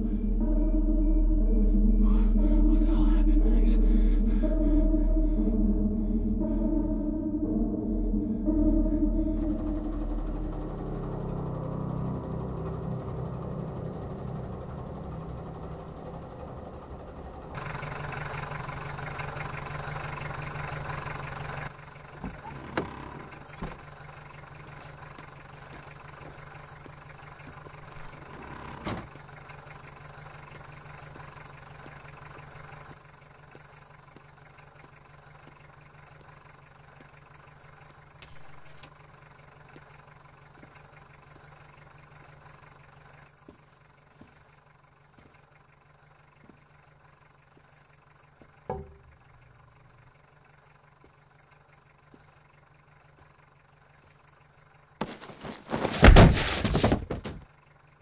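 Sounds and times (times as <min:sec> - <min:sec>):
car engine idling: 0:00.0 - 0:58.0
thud: 0:55.0 - 0:57.4.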